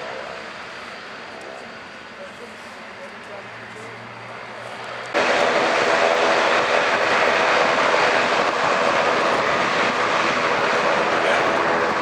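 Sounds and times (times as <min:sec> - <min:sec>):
airliner engines roaring: 0:00.0 - 0:12.0.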